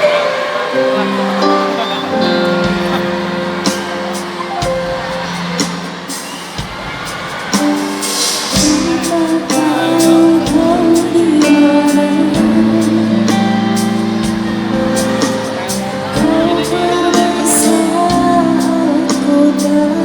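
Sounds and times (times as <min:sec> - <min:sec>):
drum hits: 0:02.5 - 0:18.5.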